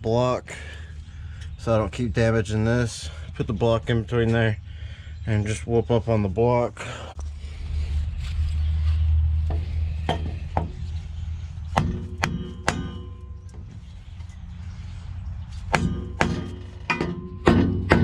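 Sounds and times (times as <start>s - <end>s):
steady low hum: 0.0s - 18.0s
hammer striking metal: 9.5s - 10.8s, 11.7s - 13.8s, 15.7s - 18.0s.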